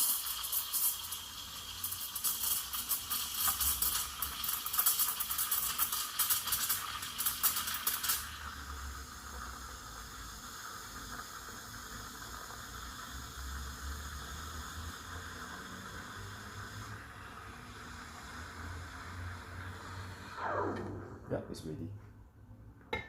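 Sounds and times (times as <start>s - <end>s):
steam wand steaming milk: 0.0s - 20.6s.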